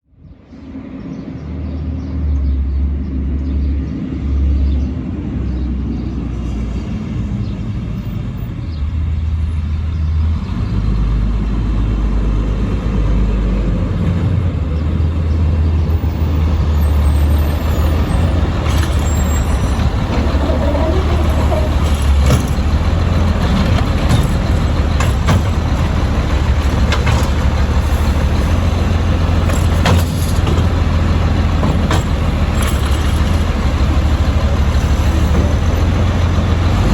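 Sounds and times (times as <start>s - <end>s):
garbage truck diesel engine rumble: 8.0s - 36.9s.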